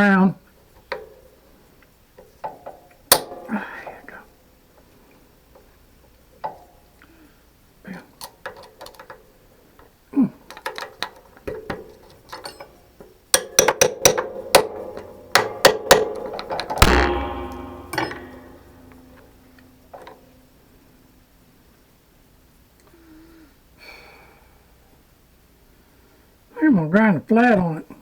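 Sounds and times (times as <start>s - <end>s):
loud ringing metallic clang: 16.8s - 19.4s.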